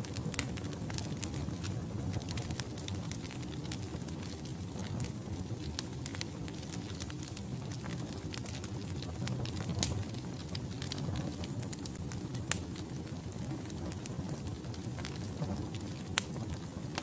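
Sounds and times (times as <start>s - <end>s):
burning logs popping: 0.0s - 17.0s
wood fire crackling: 0.0s - 17.0s.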